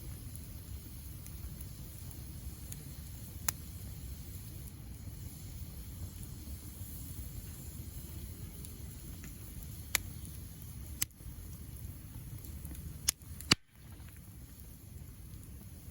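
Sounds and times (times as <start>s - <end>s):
burning wood crackling pops: 0.0s - 15.9s
wood fire rumbling: 0.0s - 15.9s.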